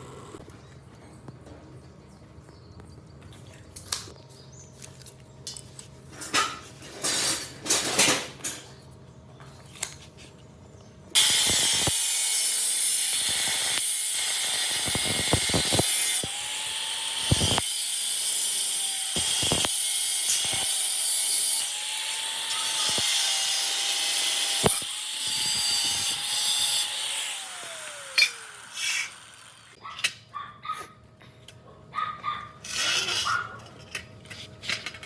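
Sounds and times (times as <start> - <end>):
metalworking tool hissing: 28.0 - 29.8.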